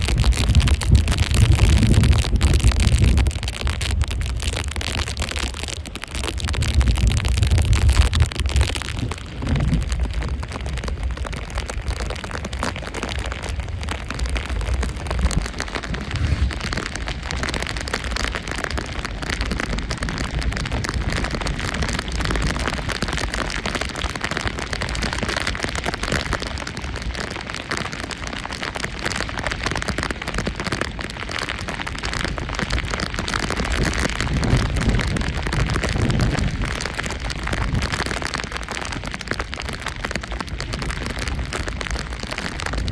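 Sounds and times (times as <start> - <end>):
steady rushing noise: 15.3 - 17.6.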